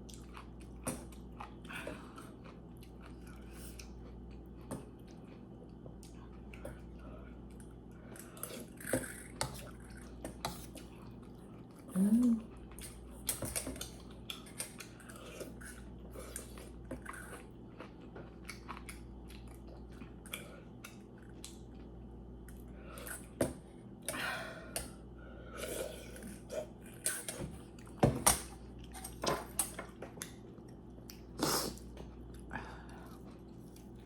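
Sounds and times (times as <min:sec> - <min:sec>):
person chewing: 0:00.0 - 0:23.4, 0:28.6 - 0:34.0.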